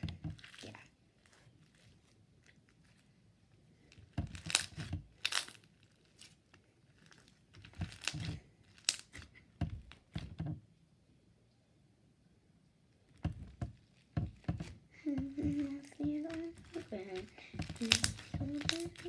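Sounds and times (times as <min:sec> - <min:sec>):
slime squished by hand: 0:03.9 - 0:10.2, 0:15.3 - 0:19.0.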